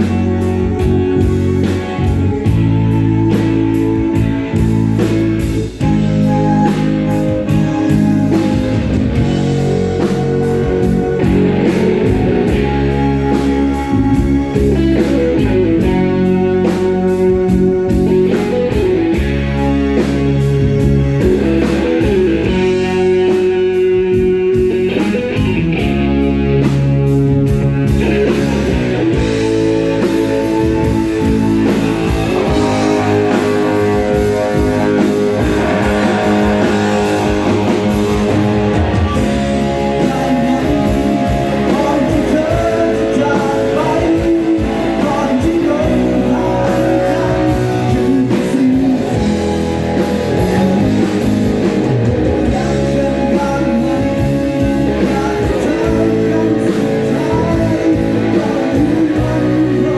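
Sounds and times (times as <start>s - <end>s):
bass guitar: 0.0s - 59.9s
drum kit: 0.0s - 59.9s
electric guitar: 0.0s - 59.9s
person singing: 28.0s - 59.9s.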